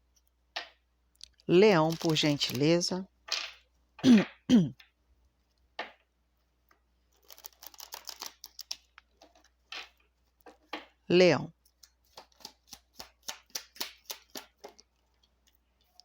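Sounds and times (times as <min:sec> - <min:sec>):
cards being shuffled: 0:01.7 - 0:02.7, 0:07.2 - 0:10.7, 0:11.7 - 0:16.0
person murmuring: 0:04.1 - 0:04.7.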